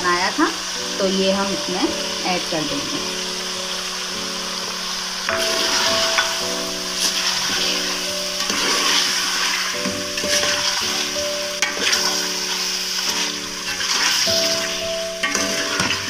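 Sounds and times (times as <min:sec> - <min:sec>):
background music with held notes: 0:00.0 - 0:16.0
meat sizzling in hot oil: 0:00.0 - 0:16.0
ladle scraping a metal pot: 0:05.3 - 0:16.0.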